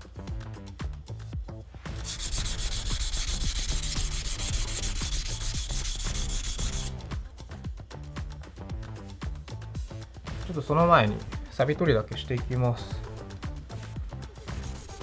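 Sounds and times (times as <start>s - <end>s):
knife scraping on whetstone: 2.0s - 7.0s, 14.4s - 15.0s.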